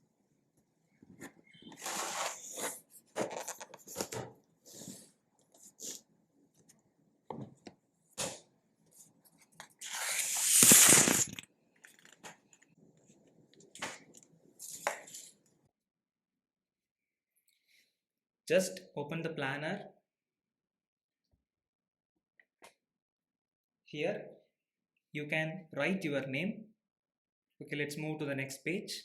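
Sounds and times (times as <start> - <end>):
packaging tearing: 9.8 - 11.4.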